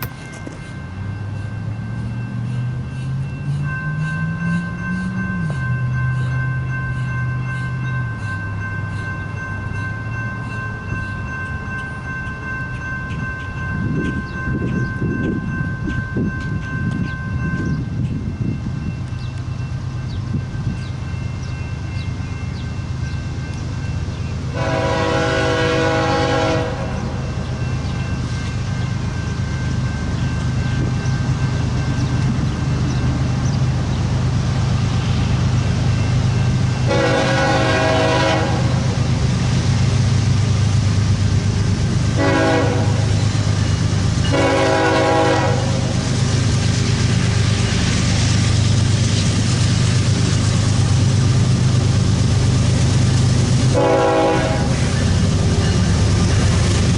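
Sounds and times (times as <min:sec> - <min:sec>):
train engines droning: 0:00.0 - 0:56.9
locomotive horn blasts: 0:24.5 - 0:27.2, 0:36.8 - 0:38.9, 0:42.2 - 0:43.2, 0:44.3 - 0:46.0, 0:53.7 - 0:54.9.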